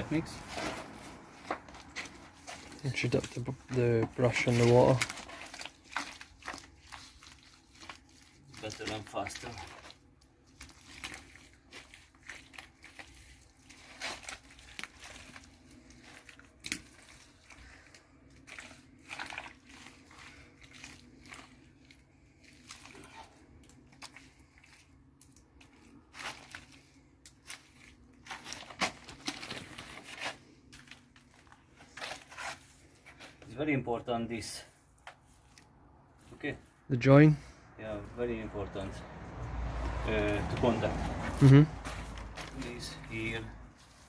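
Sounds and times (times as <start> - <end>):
wet brush scrubbing clay wall: 0.0 - 29.0.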